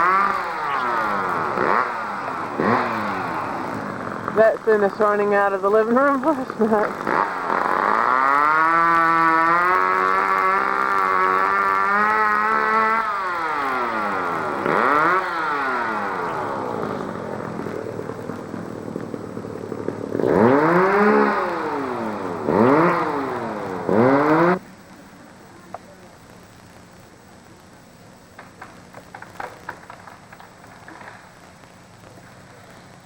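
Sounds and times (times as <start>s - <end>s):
small engine revving: 0.0s - 24.7s.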